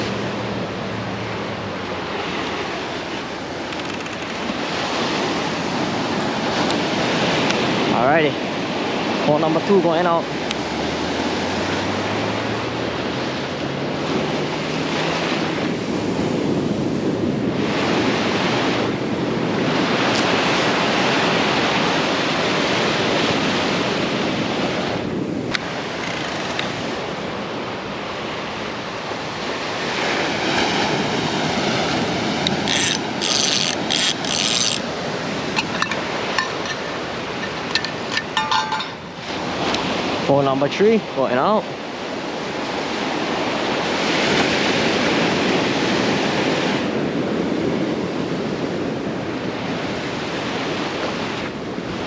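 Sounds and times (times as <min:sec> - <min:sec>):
ocean surf washing on shore: 0:00.0 - 0:52.0.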